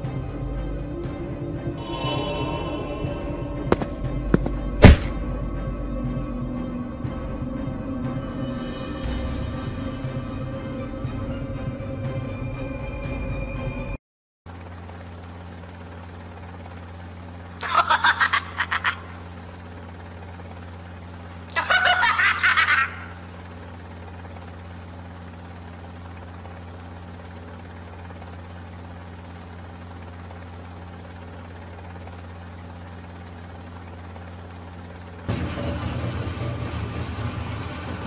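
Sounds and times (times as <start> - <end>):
flying craft engine hum: 0.0 - 38.0
pulsing laughter: 17.6 - 19.4, 21.4 - 23.4.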